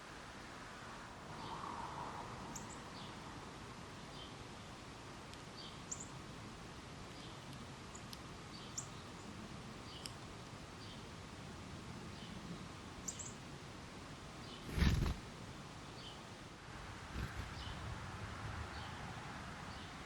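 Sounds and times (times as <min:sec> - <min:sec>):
steady background hiss: 0:00.0 - 0:20.0
songbirds chipping and calling: 0:02.5 - 0:03.2, 0:05.5 - 0:06.2, 0:07.1 - 0:11.1, 0:12.1 - 0:13.5, 0:14.3 - 0:16.4, 0:17.1 - 0:18.0.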